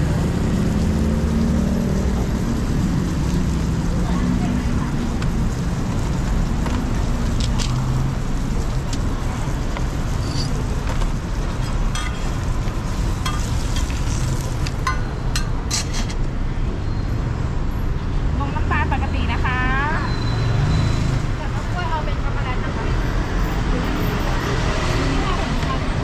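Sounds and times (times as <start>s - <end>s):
bread sizzling in oil: 0.0s - 16.2s
low traffic rumble: 0.0s - 26.0s.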